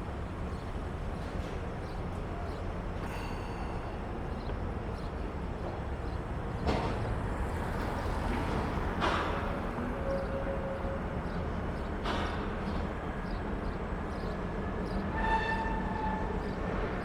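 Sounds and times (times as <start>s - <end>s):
passing traffic: 4.2s - 15.0s.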